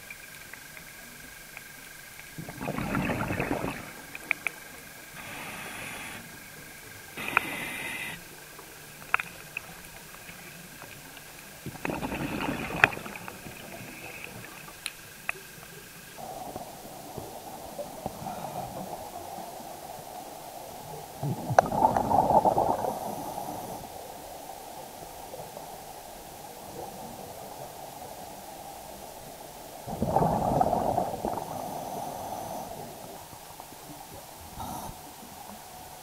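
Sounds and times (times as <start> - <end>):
faint high whine: 0.1 - 21.0
scuba regulator breathing and bubbles: 2.4 - 24.2, 29.8 - 33.7, 34.4 - 35.4
high hisses: 5.2 - 6.6, 7.2 - 8.3, 31.5 - 33.2.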